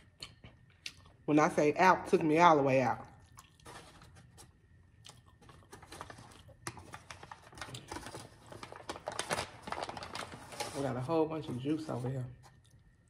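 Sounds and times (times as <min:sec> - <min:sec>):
crunching and chewing crispy food: 0:00.0 - 0:01.3, 0:03.0 - 0:10.7, 0:12.3 - 0:13.0.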